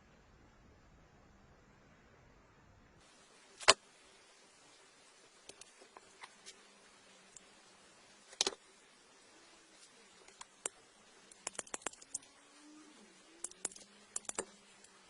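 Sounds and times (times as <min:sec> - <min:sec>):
faint hiss: 0:00.0 - 0:15.0
sharp clicks and taps: 0:10.3 - 0:12.2, 0:13.4 - 0:15.0.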